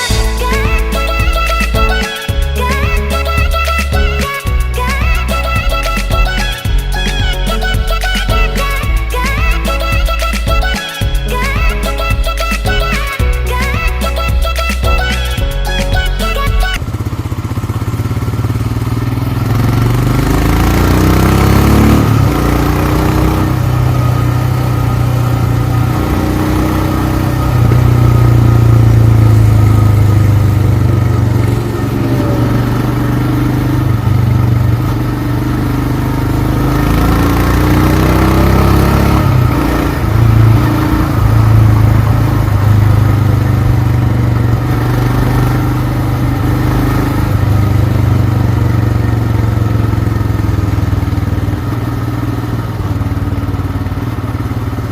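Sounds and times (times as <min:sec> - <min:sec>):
motorcycle engine accelerating: 0:16.7 - 0:54.9.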